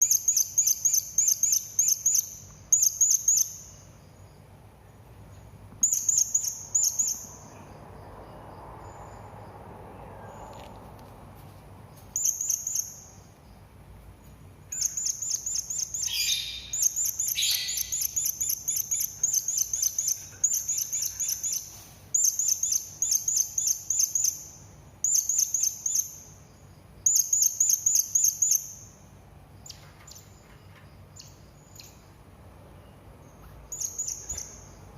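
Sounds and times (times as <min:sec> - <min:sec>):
parrot high thin chirps: 0:14.7 - 0:22.6.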